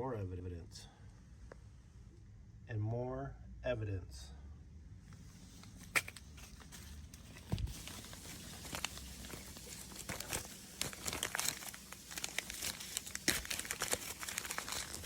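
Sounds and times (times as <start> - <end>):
wrapper crinkling and tearing: 5.8 - 15.0.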